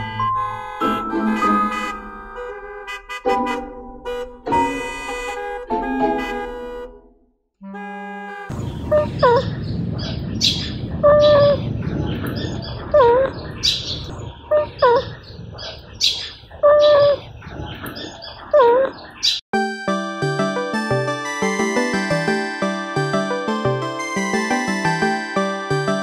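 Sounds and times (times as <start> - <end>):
steady low rumble: 8.5 - 16.6.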